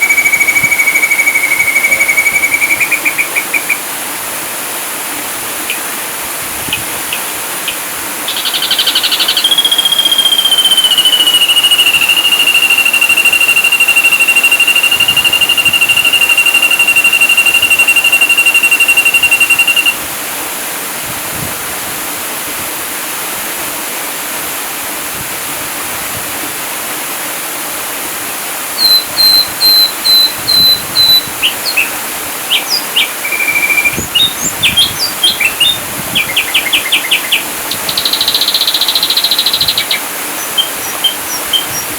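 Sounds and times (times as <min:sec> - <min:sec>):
bird calling: 0:00.0 - 0:04.0, 0:05.6 - 0:06.0, 0:06.7 - 0:20.0, 0:28.8 - 0:41.9.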